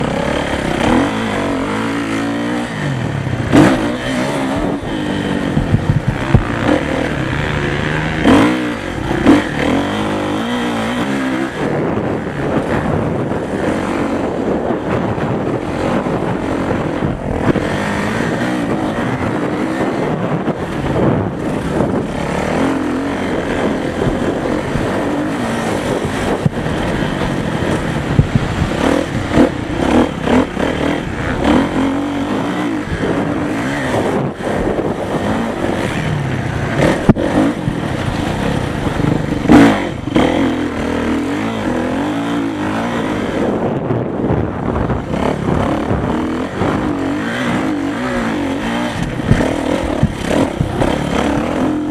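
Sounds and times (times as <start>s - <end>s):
motorcycle engines revving: 0.0s - 51.9s
loud thumps: 5.5s - 9.5s, 48.9s - 51.2s.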